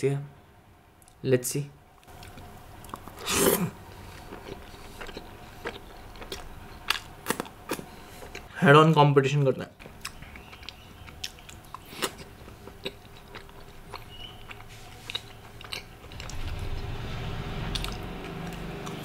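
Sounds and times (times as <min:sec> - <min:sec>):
chewing with mouth clicks: 0:02.0 - 0:08.5, 0:09.8 - 0:16.6
low rumble: 0:16.1 - 0:19.0.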